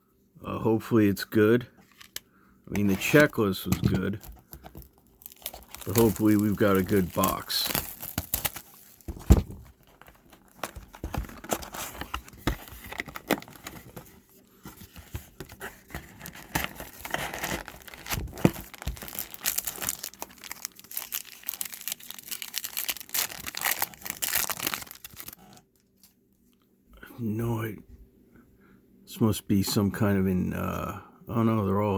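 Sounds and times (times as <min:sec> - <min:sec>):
wrapper crinkling and tearing: 0:04.1 - 0:14.0, 0:15.9 - 0:25.9.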